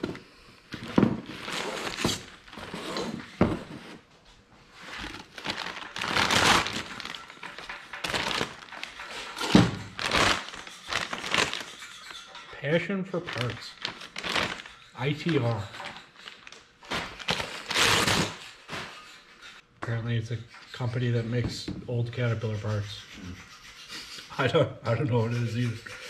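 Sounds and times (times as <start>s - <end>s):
packaging crinkling: 4.8s - 12.2s, 13.2s - 18.4s
heavy metal parts thunking: 5.4s - 12.6s.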